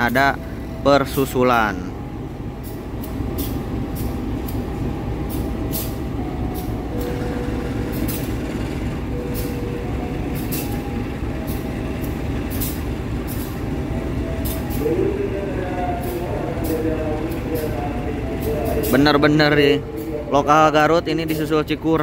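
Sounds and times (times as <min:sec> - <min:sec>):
train rolling slowly: 0:00.0 - 0:22.0
sharp clicks of train wheels: 0:02.6 - 0:14.8, 0:16.0 - 0:19.0.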